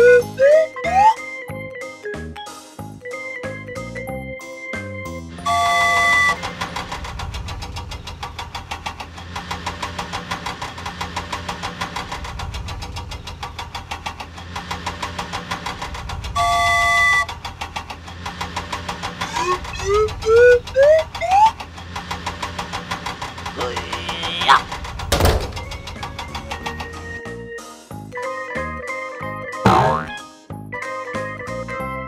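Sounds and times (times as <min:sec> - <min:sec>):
vehicle engine chugging: 0:05.2 - 0:27.5
long loud honk: 0:05.4 - 0:06.4, 0:16.4 - 0:17.3.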